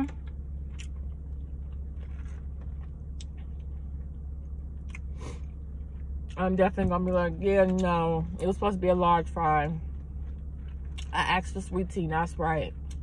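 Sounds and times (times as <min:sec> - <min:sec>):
low hum inside a car: 0:00.0 - 0:13.0
person chewing: 0:00.1 - 0:06.4, 0:09.9 - 0:11.2, 0:12.8 - 0:13.0.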